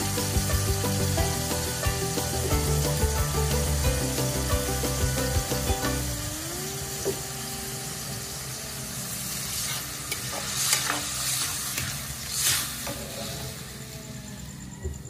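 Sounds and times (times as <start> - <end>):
food sizzling in a wok: 0.0 - 14.8
water poured into hot wok: 9.0 - 13.4
metal ladle scraping a pan: 9.5 - 13.5.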